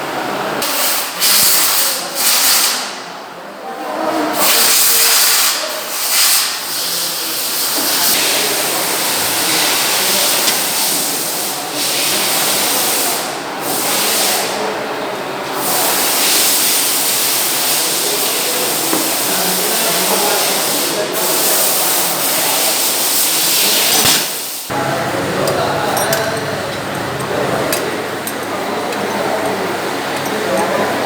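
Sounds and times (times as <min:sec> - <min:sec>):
loud spraying hiss: 0:15.6 - 0:30.6.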